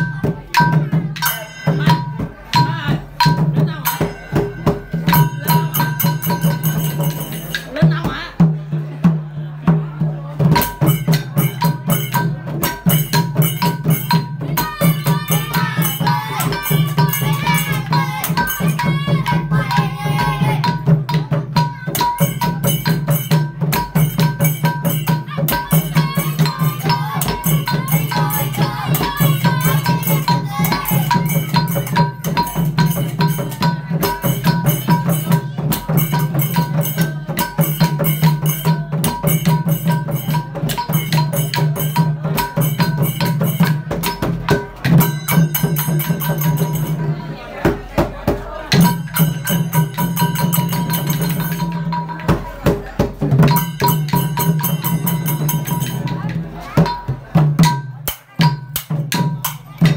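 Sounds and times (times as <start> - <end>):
fast drums: 0.0 - 59.9.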